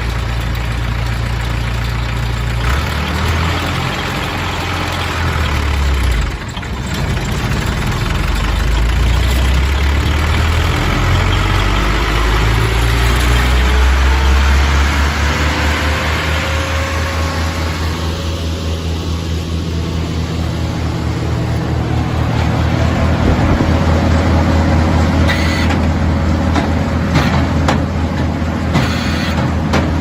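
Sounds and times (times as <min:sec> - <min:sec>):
wood chipper engine running: 0:00.0 - 0:30.0
rising whine: 0:10.3 - 0:27.0.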